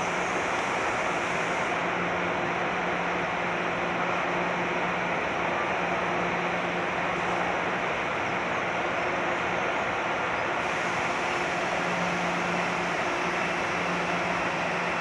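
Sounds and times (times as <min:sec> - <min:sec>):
electric train running: 0:09.8 - 0:15.0.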